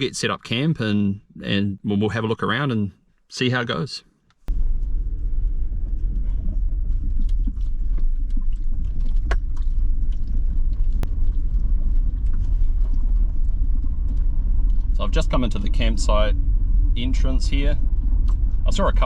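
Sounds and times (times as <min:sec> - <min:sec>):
vehicle engine and road rumble: 0:04.4 - 0:19.0.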